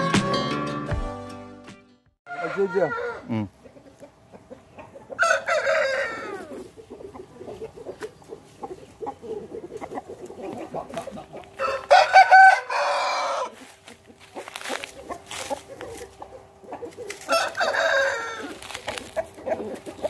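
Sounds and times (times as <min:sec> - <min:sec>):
rooster crowing: 0:02.3 - 0:03.4, 0:05.1 - 0:06.7, 0:11.6 - 0:13.7, 0:17.2 - 0:19.8
soft clucking: 0:02.8 - 0:05.2, 0:06.3 - 0:11.6, 0:18.5 - 0:20.0.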